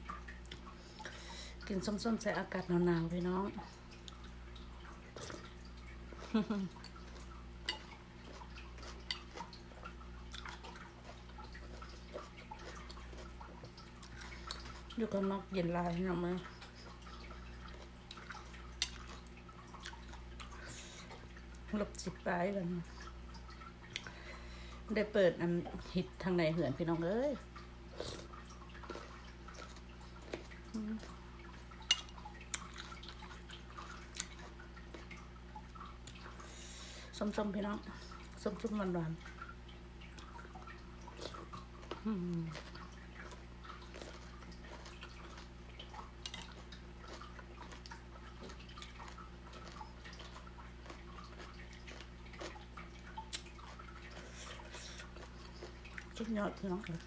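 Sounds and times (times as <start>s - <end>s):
faint electrical hum: 0.0s - 57.0s
person chewing food: 5.1s - 15.0s, 16.6s - 21.5s, 27.9s - 36.9s, 40.2s - 56.2s
person humming mm: 42.0s - 42.6s
wet mouth clicks and smacks: 53.2s - 53.6s.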